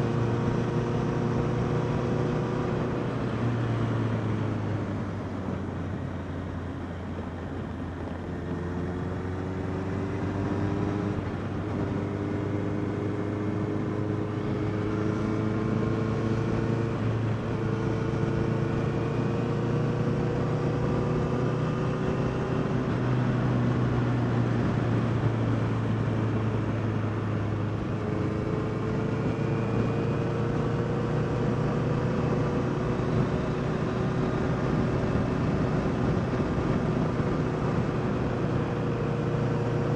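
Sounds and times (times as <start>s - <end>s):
motorcycle engine revving: 8.3s - 39.9s.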